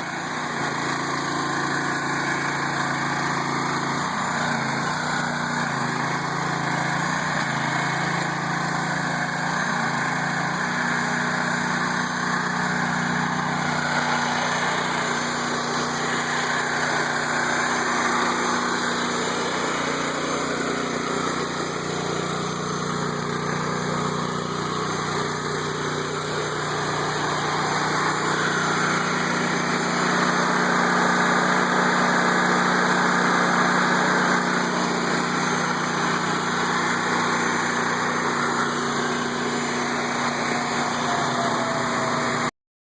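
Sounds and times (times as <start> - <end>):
small engine running: 0.0 - 42.6.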